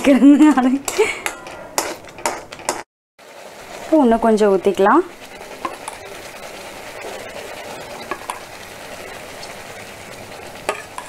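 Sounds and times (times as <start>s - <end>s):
syrup pouring: 3.2s - 3.9s, 4.7s - 11.0s
paste sizzling in a pan: 3.2s - 11.0s
utensils clicking against pan: 4.2s - 11.0s.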